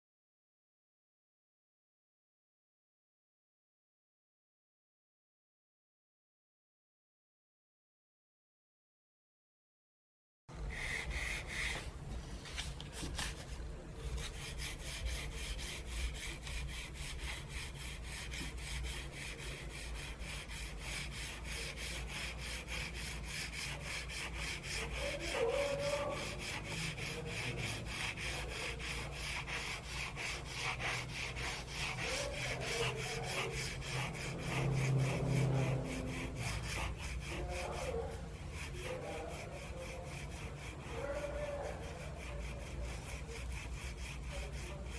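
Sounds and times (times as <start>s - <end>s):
charcoal scratching on paper: 10.6s - 44.9s.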